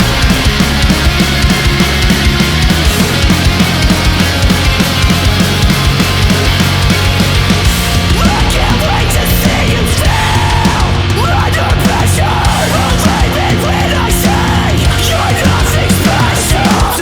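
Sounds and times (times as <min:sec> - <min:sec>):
heavy rock song: 0:00.0 - 0:17.0.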